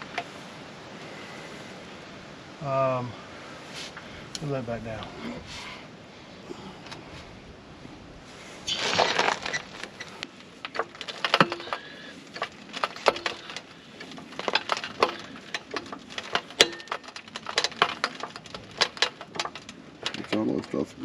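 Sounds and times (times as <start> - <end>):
jack scraping rush: 8.2 - 20.8.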